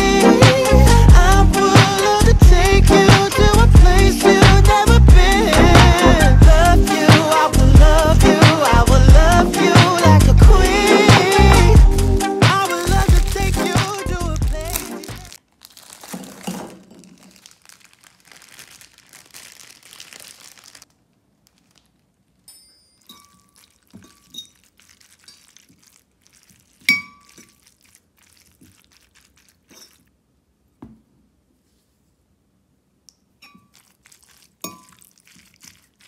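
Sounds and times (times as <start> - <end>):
background music: 0.0 - 15.4
rustling: 12.4 - 30.2, 33.5 - 36.0
small ringing clinks: 22.4 - 24.6.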